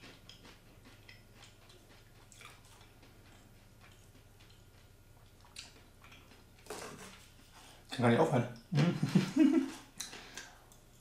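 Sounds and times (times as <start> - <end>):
person chewing crunchy chips: 0.0 - 7.8.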